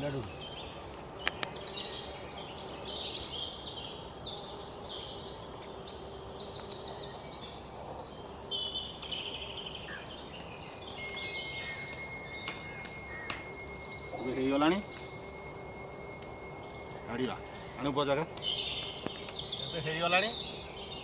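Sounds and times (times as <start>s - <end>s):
insects chirping in trills: 9.8s - 21.0s
thin high tone: 10.0s - 21.0s.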